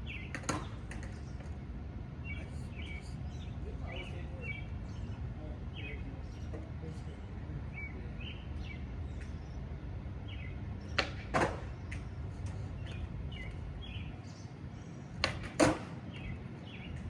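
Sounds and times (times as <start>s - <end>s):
skateboard rolling on pavement: 0.0s - 5.1s, 10.4s - 14.6s, 15.2s - 17.0s
birds chirping: 0.0s - 17.0s
skateboard wooden clacks: 0.2s - 1.6s, 10.9s - 13.0s, 15.2s - 16.3s.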